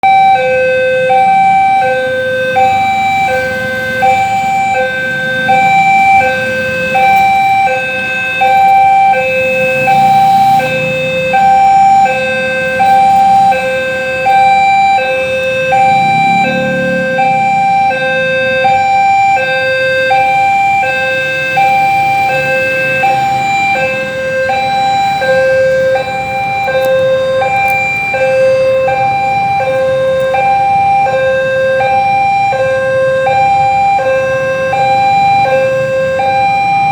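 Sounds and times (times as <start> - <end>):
level crossing two-tone alarm: 0.0 - 36.9.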